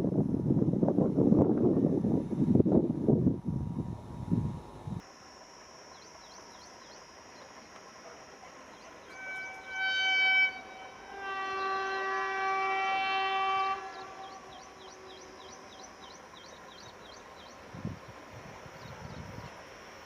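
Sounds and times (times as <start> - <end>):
faint birds chirping: 5.8 - 9.7, 10.5 - 20.0
locomotive horn blasts: 8.9 - 16.3.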